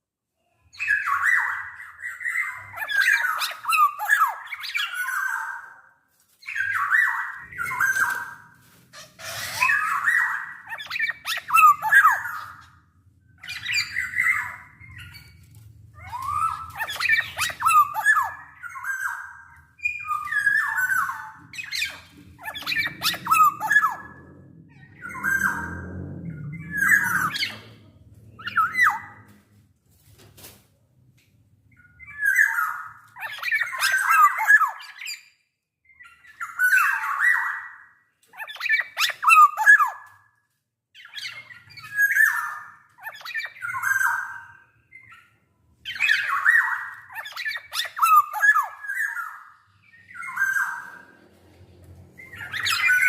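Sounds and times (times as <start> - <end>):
low hum: 21.9 - 29.8.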